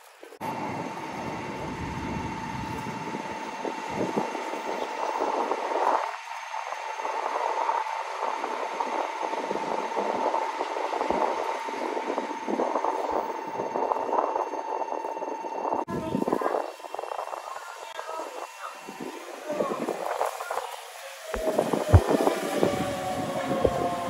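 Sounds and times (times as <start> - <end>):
train whine: 0.4 - 24.0
distant train rushing past: 15.9 - 24.0.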